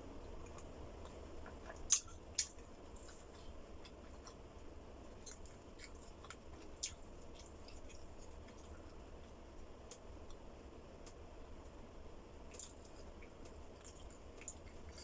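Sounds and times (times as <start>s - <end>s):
person chewing: 1.4s - 4.4s, 5.1s - 9.0s, 12.5s - 15.0s.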